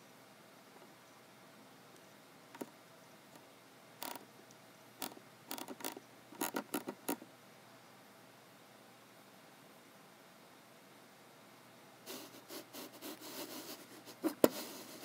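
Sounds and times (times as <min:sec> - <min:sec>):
keyboard and mouse clicks: 0:02.5 - 0:02.7, 0:04.0 - 0:04.2, 0:05.0 - 0:07.2.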